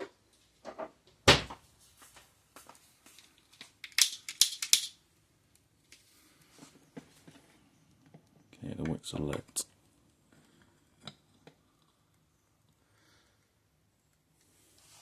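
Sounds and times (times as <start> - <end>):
handling clicks: 3.8 - 5.0.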